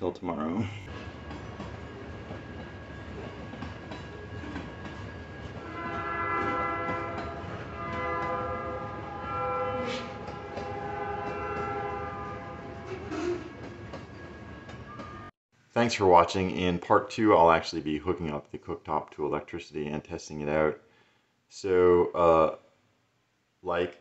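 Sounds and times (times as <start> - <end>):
freight train rumbling: 0.8 - 15.3
train horn blasts: 5.6 - 13.6.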